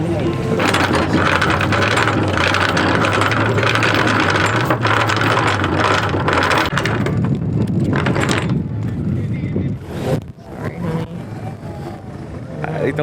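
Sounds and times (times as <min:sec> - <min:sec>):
anchor chain rattling: 0:00.0 - 0:08.6.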